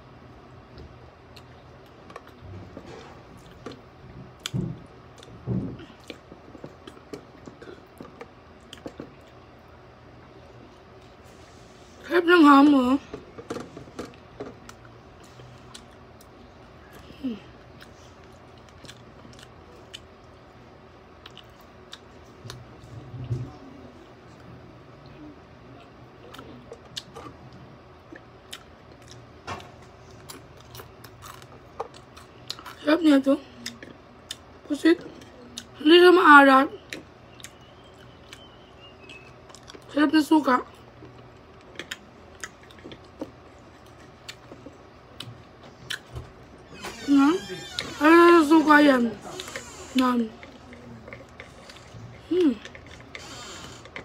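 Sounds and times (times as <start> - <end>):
chewing toast: 17.6 - 20.6.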